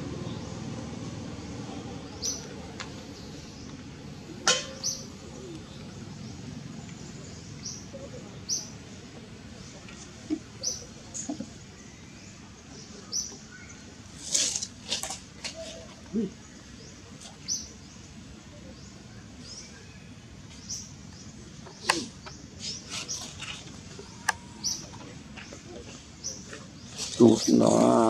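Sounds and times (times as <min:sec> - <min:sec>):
birds chirping high notes: 0:23.9 - 0:25.1.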